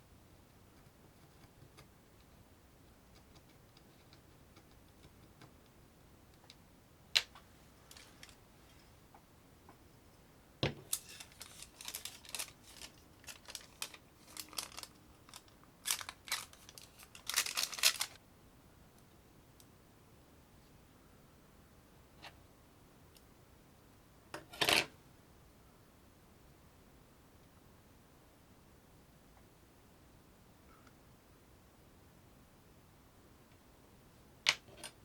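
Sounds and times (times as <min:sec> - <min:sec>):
scraping and rustling handling noises: 0:07.4 - 0:09.0, 0:10.6 - 0:18.2.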